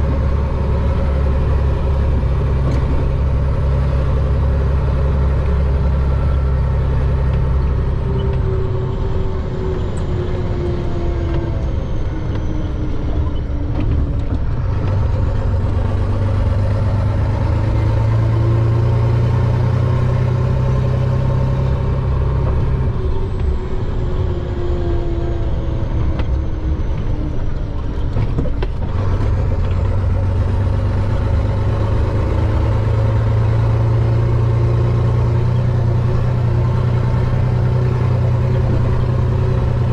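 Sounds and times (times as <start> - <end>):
truck diesel engine running: 0.0 - 39.9.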